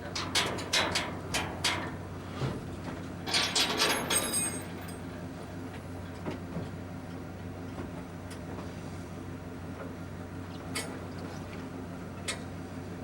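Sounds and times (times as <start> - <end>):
metallic rattling and clanking: 3.3 - 5.0.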